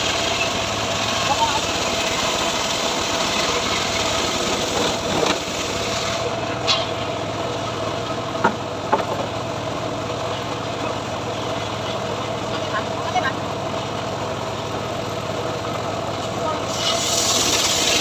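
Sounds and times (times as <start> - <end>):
sawmill engine running: 0.0 - 18.0.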